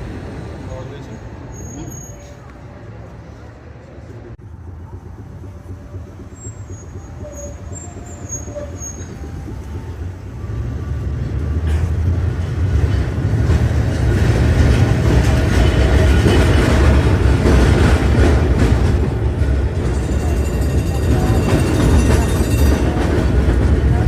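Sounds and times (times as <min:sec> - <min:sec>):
tram rumbling on rails: 0:00.0 - 0:24.0
faint short squeaks: 0:01.5 - 0:02.5.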